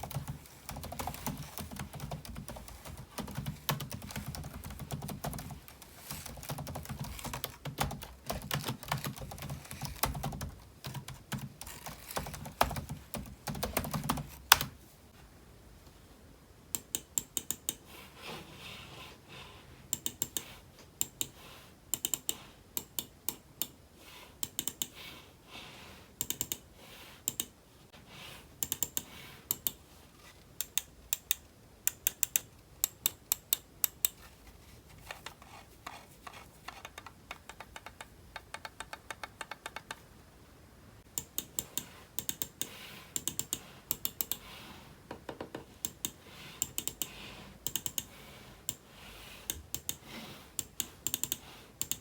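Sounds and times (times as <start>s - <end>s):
typing on computer keyboard: 0.0s - 14.7s, 22.0s - 23.4s, 24.4s - 24.9s, 26.2s - 26.6s, 28.6s - 29.8s, 30.6s - 34.1s, 36.7s - 40.0s, 41.2s - 44.4s, 45.8s - 48.1s, 49.5s - 50.0s, 50.6s - 52.0s.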